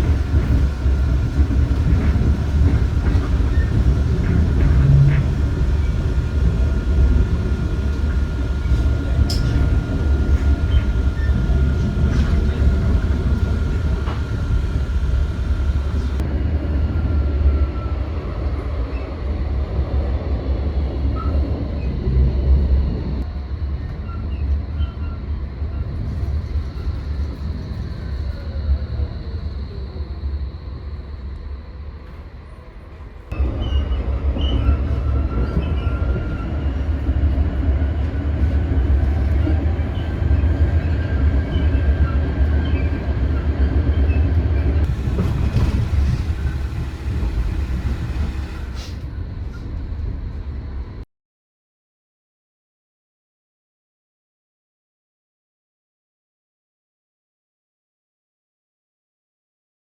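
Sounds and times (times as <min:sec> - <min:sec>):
thin steady whine: 0:00.0 - 0:16.2
tram rumbling on rails: 0:00.0 - 0:51.0.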